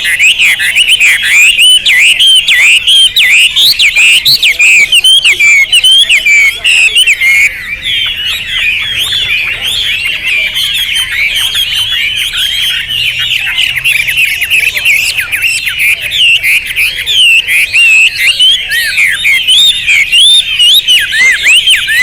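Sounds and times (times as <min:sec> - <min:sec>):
bird singing whistled notes: 0:00.0 - 0:22.0.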